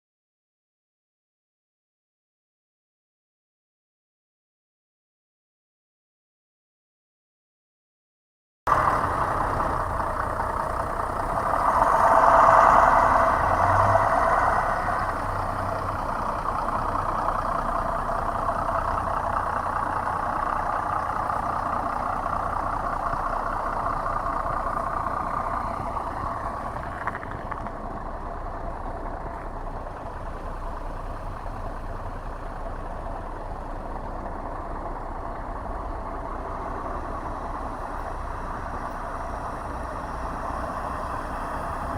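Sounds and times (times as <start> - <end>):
road traffic hum: 8.7 - 41.9.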